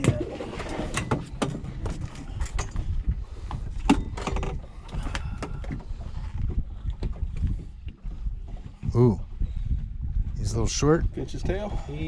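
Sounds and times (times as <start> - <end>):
fish flopping against boat: 0.0 - 8.9
wind on microphone: 0.0 - 12.0.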